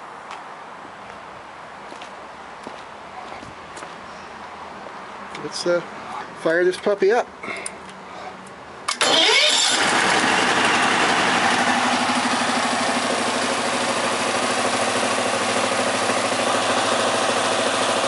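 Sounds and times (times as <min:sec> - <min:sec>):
engine starting and running: 0:08.8 - 0:18.0.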